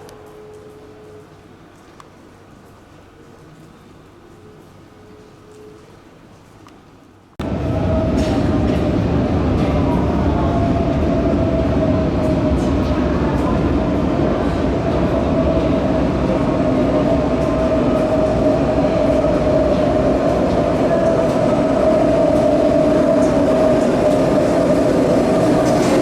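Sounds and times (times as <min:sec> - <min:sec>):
electric train rumble: 0:07.4 - 0:26.0
train whine: 0:07.4 - 0:26.0.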